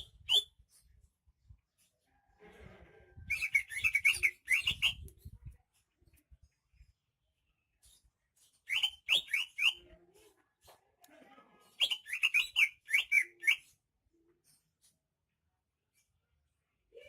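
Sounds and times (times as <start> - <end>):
bird chirping: 3.3 - 5.1, 8.7 - 9.8, 11.8 - 13.8.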